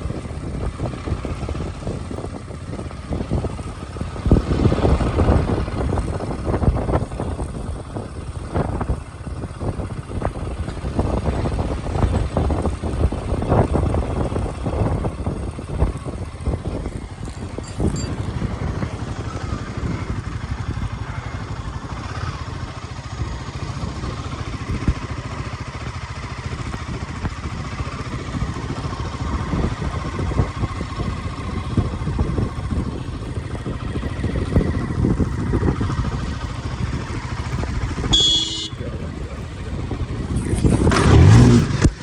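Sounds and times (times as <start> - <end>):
road noise: 0.0 - 42.0
vehicle engine drone: 0.0 - 42.0
short high-pitched tone: 17.6 - 18.2.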